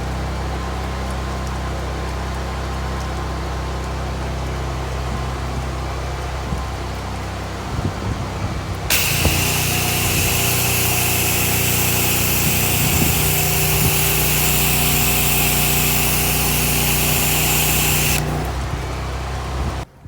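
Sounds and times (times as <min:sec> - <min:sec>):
high-pressure water spray hissing: 0:08.9 - 0:19.2
pressure washer engine running: 0:08.9 - 0:19.7.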